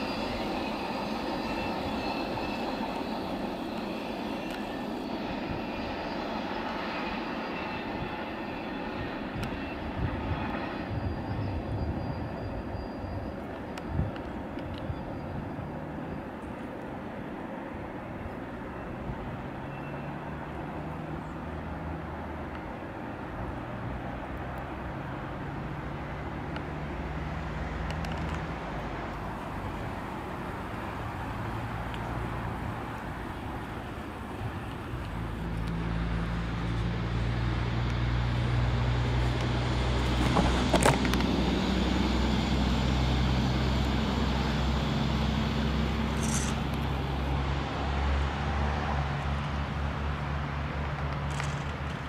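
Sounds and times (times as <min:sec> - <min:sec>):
train wheels rumbling on rail: 0:00.0 - 0:20.9, 0:22.4 - 0:52.0
train cars rolling rumble: 0:27.8 - 0:52.0.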